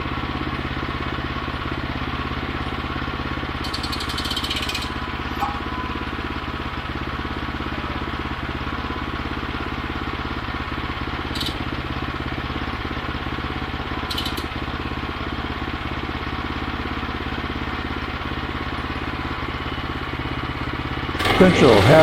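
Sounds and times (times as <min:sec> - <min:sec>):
sawmill engine running: 0:00.0 - 0:22.0
high clicks: 0:14.1 - 0:14.5.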